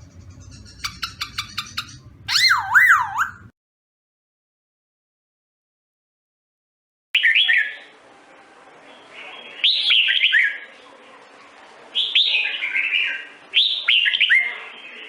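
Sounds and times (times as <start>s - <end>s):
songbird whistling: 0.5s - 3.5s.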